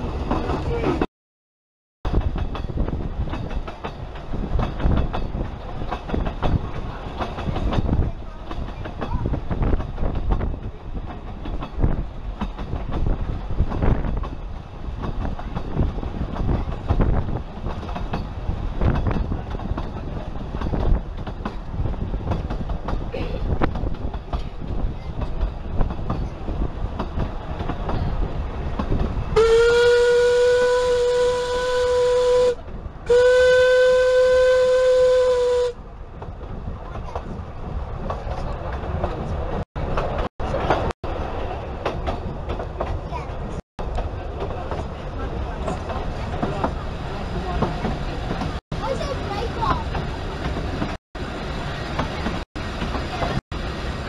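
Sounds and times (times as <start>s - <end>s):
train carriage rumble and clatter: 0.0s - 1.1s, 2.0s - 54.0s
locomotive whistle blasts: 29.4s - 35.8s.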